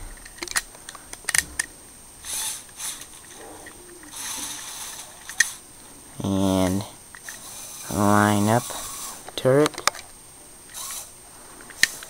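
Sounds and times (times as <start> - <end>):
plastic clicks: 0.0 - 1.7, 9.2 - 10.1, 11.7 - 12.0.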